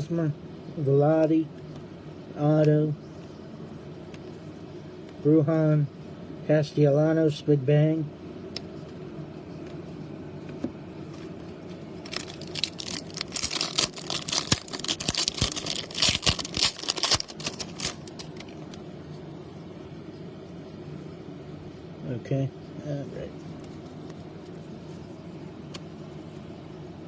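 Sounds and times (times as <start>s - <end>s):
steady low hum: 0.0s - 27.0s
card pack wrapper crinkling and tearing: 12.0s - 18.8s.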